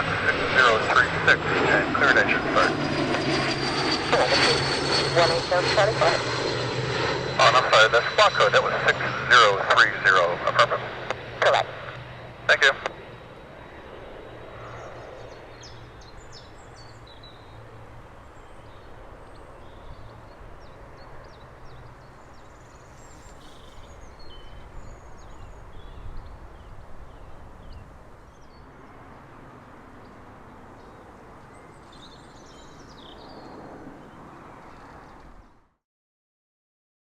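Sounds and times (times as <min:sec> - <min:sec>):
low outdoor rumble: 0:00.0 - 0:28.2
small birds chirping: 0:10.6 - 0:35.5.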